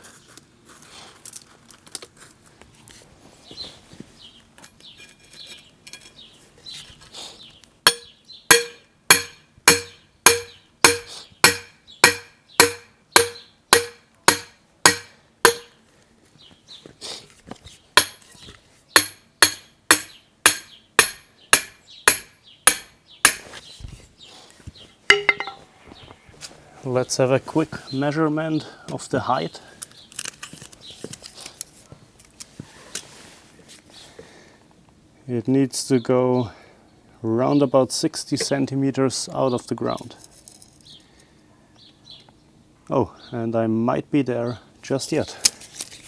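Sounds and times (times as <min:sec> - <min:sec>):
hammer striking metal rod: 0:07.9 - 0:15.8, 0:18.0 - 0:18.2, 0:19.0 - 0:23.5, 0:25.1 - 0:25.6.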